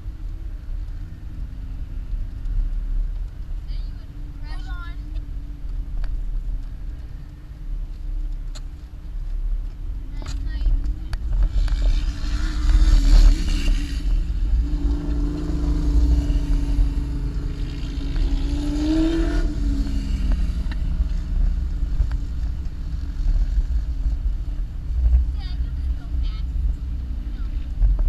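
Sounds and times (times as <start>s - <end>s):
car engine running under load: 0.0s - 28.0s
deep rumble: 0.0s - 28.0s.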